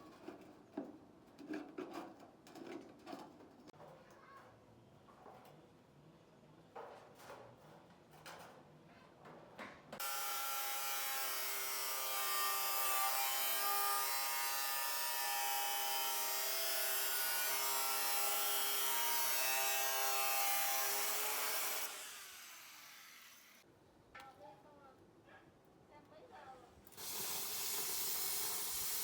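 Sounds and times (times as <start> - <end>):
handheld power tool running: 27.0 - 29.0.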